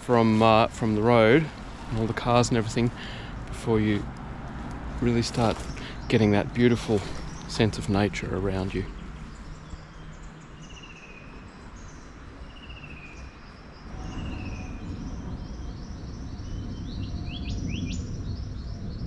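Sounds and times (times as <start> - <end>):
low steady rumble: 0.0 - 9.8
birds singing: 0.0 - 19.0.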